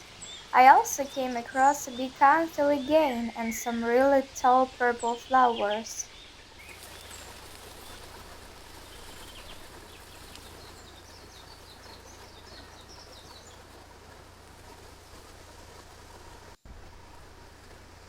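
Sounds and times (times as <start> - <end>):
small birds chirping: 0.0 - 13.8
steady outdoor hiss: 0.0 - 18.0.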